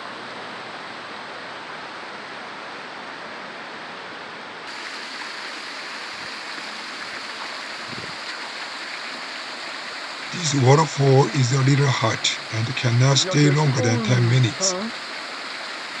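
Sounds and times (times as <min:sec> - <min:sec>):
river water rushing: 0:04.7 - 0:16.0.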